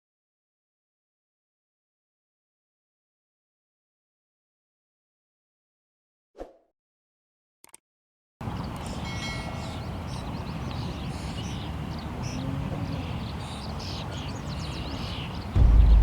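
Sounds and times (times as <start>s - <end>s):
birds chirping and calling: 8.4s - 16.0s
steady low rumble: 15.6s - 16.0s.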